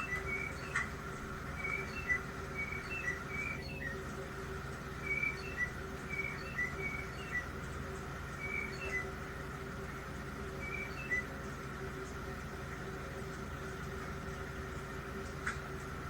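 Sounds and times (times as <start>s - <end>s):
songbirds chirping: 0.0s - 15.8s.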